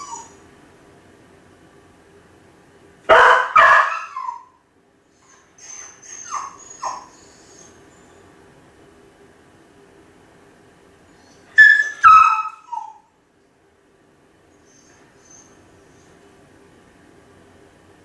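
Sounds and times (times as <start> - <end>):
dog whimpering yelps: 0.0 - 0.4, 3.4 - 4.6, 5.2 - 8.2, 11.2 - 13.1, 14.6 - 15.6
dog whining: 0.0 - 0.4, 3.5 - 4.6, 5.2 - 8.2, 11.2 - 13.1, 14.6 - 16.1
dog barking: 3.1 - 4.5, 11.6 - 13.0.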